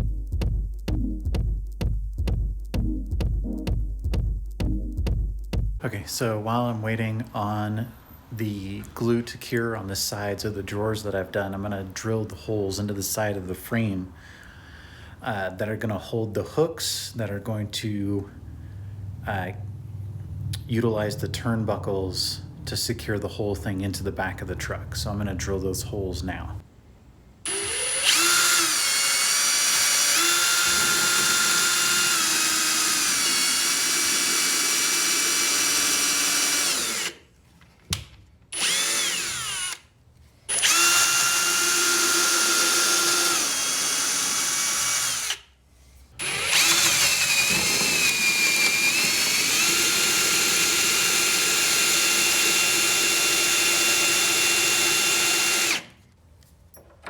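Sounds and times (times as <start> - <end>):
power drill boring holes: 27.5 - 37.2, 38.5 - 39.8, 40.5 - 45.5, 46.2 - 56.0.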